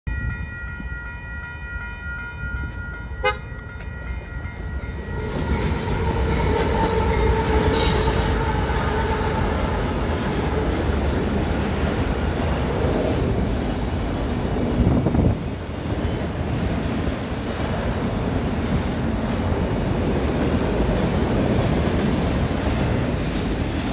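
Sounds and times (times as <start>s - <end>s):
level crossing bell ringing: 0.1s - 5.8s
train horn: 3.2s - 3.7s, 4.5s - 10.7s
freight cars rolling by: 4.9s - 23.9s.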